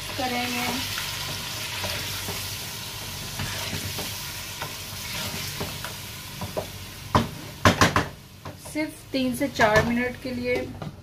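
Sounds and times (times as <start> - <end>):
chicken sizzling in a pot: 0.0 - 10.3
wooden spatula scraping: 3.3 - 5.8.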